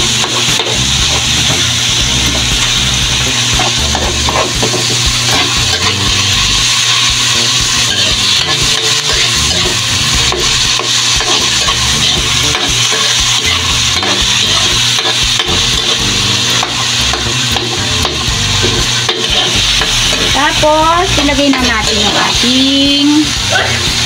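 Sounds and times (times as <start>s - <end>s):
vegetables sizzling in oil: 0.0s - 24.0s
metal spatula scraping pan: 3.6s - 22.5s.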